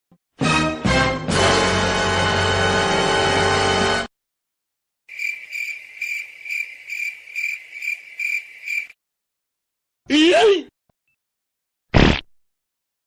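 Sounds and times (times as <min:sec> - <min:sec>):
music: 0:00.3 - 0:04.1
cricket chirping: 0:05.1 - 0:09.0.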